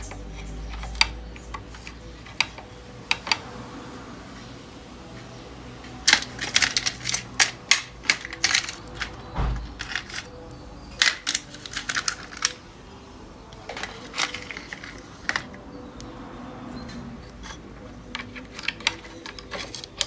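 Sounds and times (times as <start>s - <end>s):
small hard objects clattering: 6.0s - 12.6s, 13.6s - 15.6s, 18.2s - 20.0s
dull thump: 9.4s - 9.7s.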